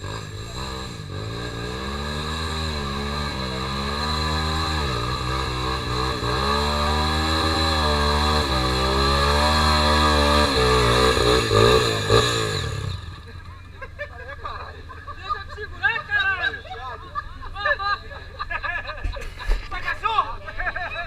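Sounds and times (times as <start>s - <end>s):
motorcycle engine revving: 0.0s - 13.8s.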